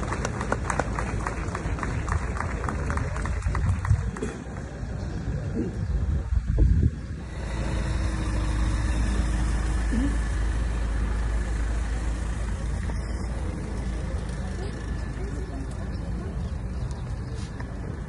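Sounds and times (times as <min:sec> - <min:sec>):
vehicle engine idling: 0:06.8 - 0:18.0.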